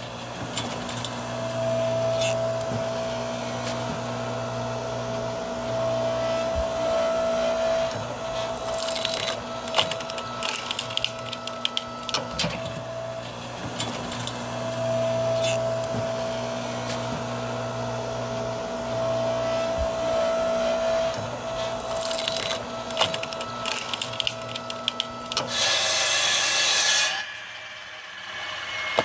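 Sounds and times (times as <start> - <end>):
wood-splitting machine motor hum: 0.1 - 29.0
log crackling and snapping: 8.3 - 12.6, 21.5 - 25.8.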